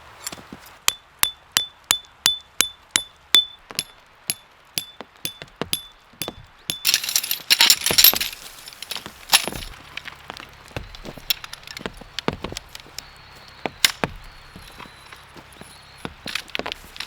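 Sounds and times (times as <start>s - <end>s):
light taps and clicks: 3.7s - 17.0s
loud wooden knocks: 7.7s - 17.0s.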